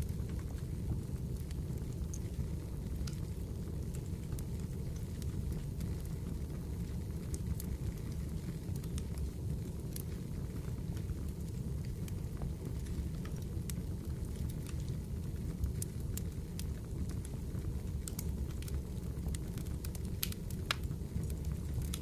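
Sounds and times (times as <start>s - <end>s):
fireplace fire crackling: 0.0s - 22.0s.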